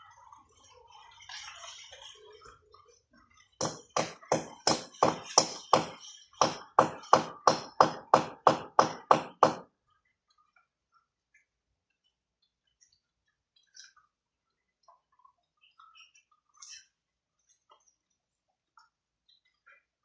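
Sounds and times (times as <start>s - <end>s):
hammer striking: 3.6s - 9.6s.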